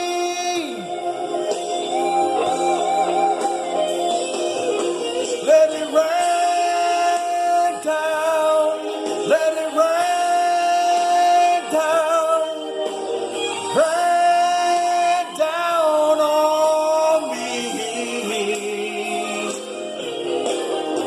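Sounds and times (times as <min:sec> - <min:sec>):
person singing with vibrato: 0:00.0 - 0:21.0.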